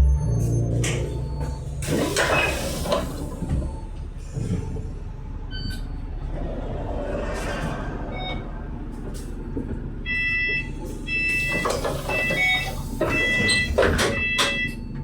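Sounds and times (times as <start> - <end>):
bus engine rumble: 0.0 - 15.0
electronic warning beep: 9.4 - 15.0.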